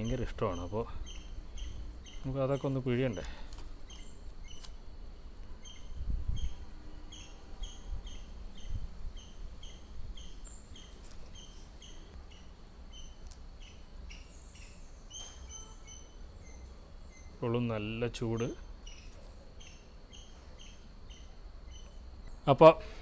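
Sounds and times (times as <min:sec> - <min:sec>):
small bird chirping: 0:00.0 - 0:23.0.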